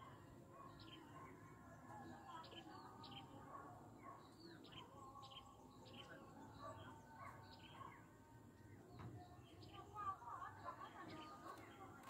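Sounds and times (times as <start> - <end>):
faint birds chirping: 0.0 - 12.0
low outdoor background hum: 0.0 - 12.0.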